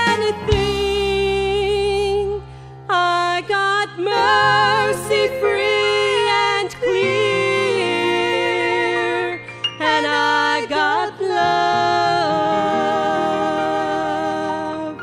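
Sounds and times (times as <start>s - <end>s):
band chords and bass: 0.0s - 2.7s
woman singing gospel: 0.0s - 15.0s.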